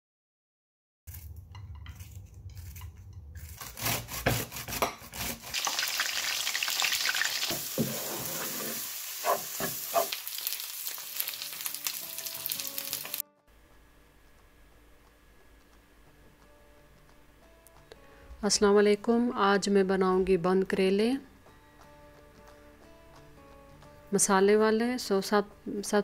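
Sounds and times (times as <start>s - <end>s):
vegetables sizzling in hot oil: 5.5s - 13.2s.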